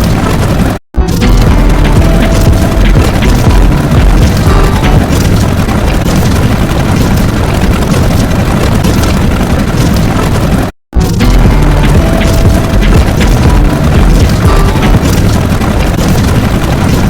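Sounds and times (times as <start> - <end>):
loud low rumbling: 1.0 - 6.6, 11.0 - 16.6.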